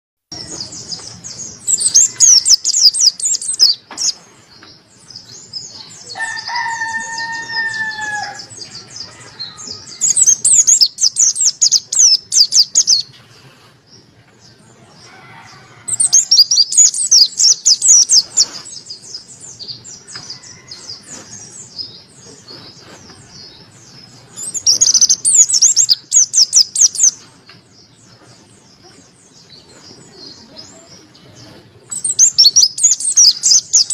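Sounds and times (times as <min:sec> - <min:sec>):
bird twittering: 0:00.3 - 0:04.2, 0:09.5 - 0:13.1, 0:15.9 - 0:19.3, 0:24.4 - 0:27.2, 0:29.7 - 0:33.9
soft bird chirps: 0:00.3 - 0:13.7, 0:15.0 - 0:33.9.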